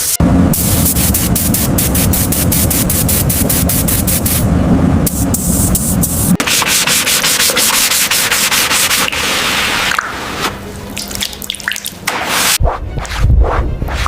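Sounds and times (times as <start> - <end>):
hand sanding strokes: 5.5 - 10.4.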